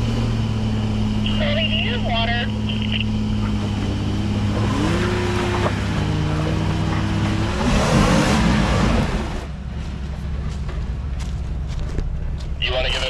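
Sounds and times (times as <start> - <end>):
engine revving under load: 0.0 - 9.6.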